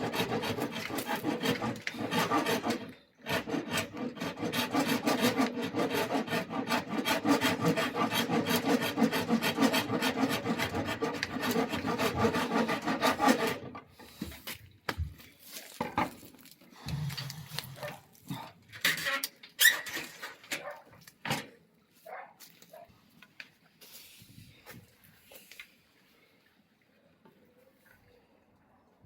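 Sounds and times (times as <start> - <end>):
hand tool rasping wood: 0.0 - 14.2.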